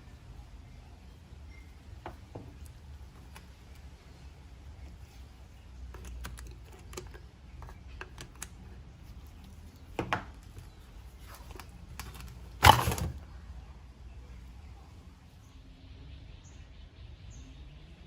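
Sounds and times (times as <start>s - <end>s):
tools and small parts clinking: 9.8s - 13.2s
clatter of parts: 10.0s - 13.3s.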